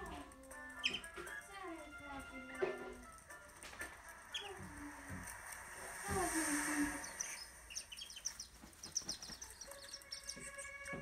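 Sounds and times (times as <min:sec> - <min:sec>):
bird peeps and chirps: 0:00.5 - 0:01.4, 0:04.2 - 0:05.6, 0:06.4 - 0:11.0
soft hissing wash: 0:03.9 - 0:09.7.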